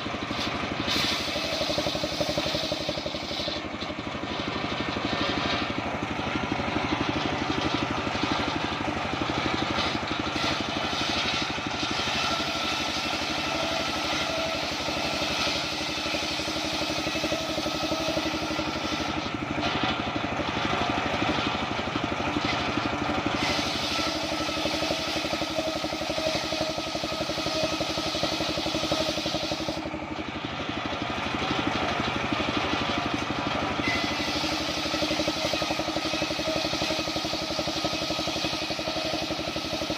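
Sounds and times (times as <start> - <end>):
saw rig engine running: 0.0 - 39.9
hiss: 0.3 - 3.6, 9.7 - 19.3, 23.4 - 29.9, 33.8 - 39.9.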